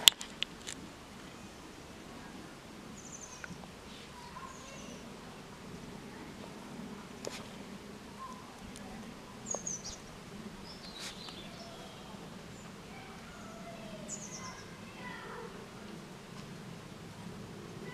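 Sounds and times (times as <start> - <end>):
small birds chirping: 0.0 - 17.9
steady low background hum: 0.0 - 17.9
soft whistled bird notes: 1.3 - 5.1, 9.3 - 14.9
faint clicks: 3.4 - 3.7, 8.2 - 10.2, 10.8 - 12.8.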